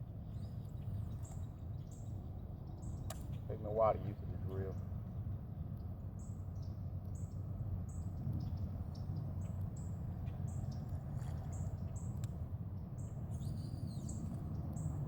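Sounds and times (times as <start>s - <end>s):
small bird chirping: 13.0s - 15.0s.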